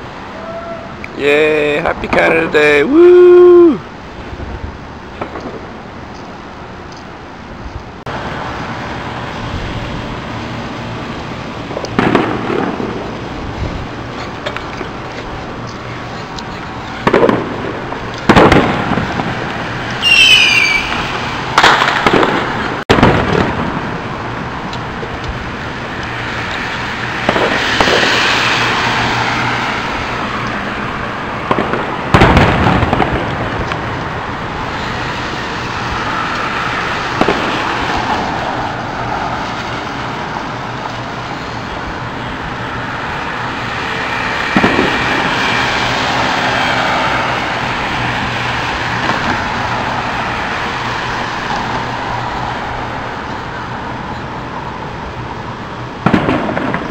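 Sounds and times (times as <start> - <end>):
whistling firework: 0.3 - 1.0, 11.4 - 14.1, 14.9 - 24.2, 25.8 - 30.4, 31.4 - 52.0, 56.0 - 56.9
fireworks booming: 3.3 - 6.7, 8.0 - 52.8, 55.8 - 56.9.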